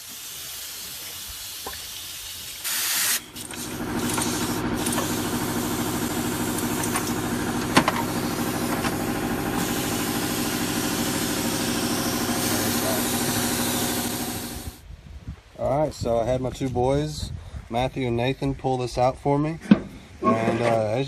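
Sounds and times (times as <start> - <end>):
hissing air burst: 0.0 - 14.8
motor-driven machine pulsing: 3.2 - 14.8.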